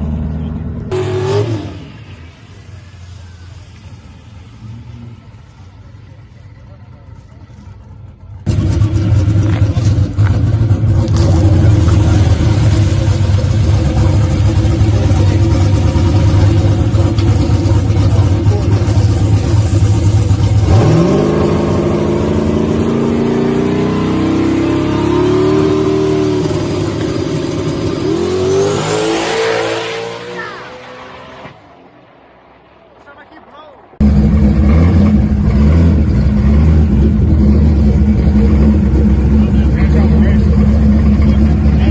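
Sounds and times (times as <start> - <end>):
drag car engine revving: 0.0 - 31.6, 34.0 - 41.9.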